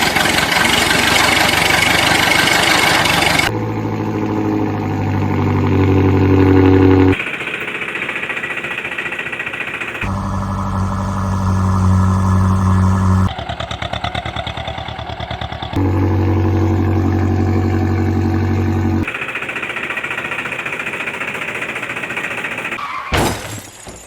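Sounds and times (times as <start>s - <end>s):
cartoon engine drone: 3.5s - 7.2s, 10.0s - 13.3s, 15.8s - 19.1s
cartoon engine rattling chug: 10.0s - 21.9s.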